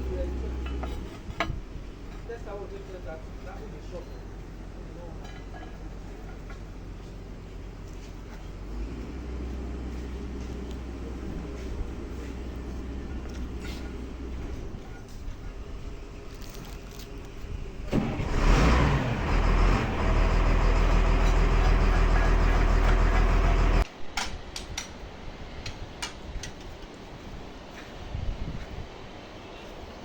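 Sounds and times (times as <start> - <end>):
engine running with deep hum: 0.0 - 23.9.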